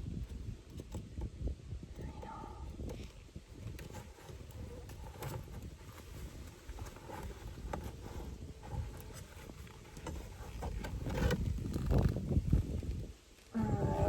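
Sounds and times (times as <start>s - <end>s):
light knocks and scrapes on wood: 2.2s - 13.0s.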